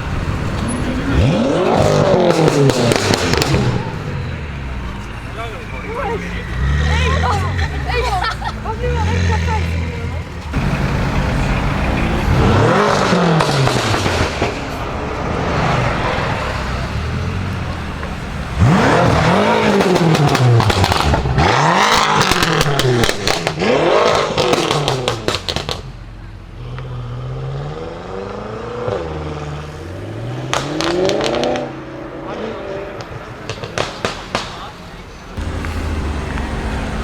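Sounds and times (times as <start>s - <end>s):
exhaust crackles and pops: 0.0s - 4.1s, 10.4s - 15.3s, 17.7s - 25.9s, 32.9s - 37.0s
car engine revving: 0.0s - 37.0s.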